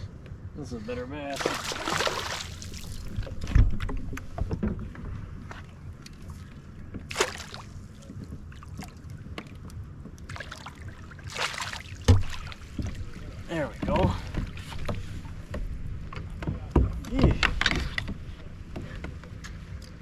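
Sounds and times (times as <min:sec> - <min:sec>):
wind rumble on microphone: 0:02.6 - 0:20.0
knocks aboard a kayak: 0:12.0 - 0:19.5.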